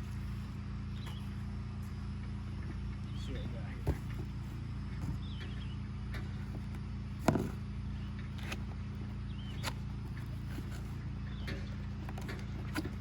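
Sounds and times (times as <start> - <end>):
steady low hum: 0.0 - 13.0
cardboard box knocks and rustles: 2.6 - 5.5, 6.4 - 7.6.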